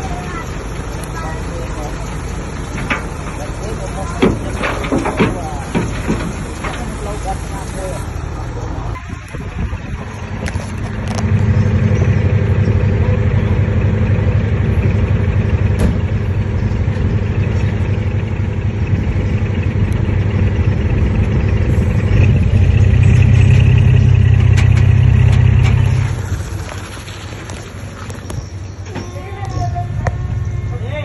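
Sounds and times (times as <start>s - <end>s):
heavy diesel engine under load: 0.0s - 31.0s.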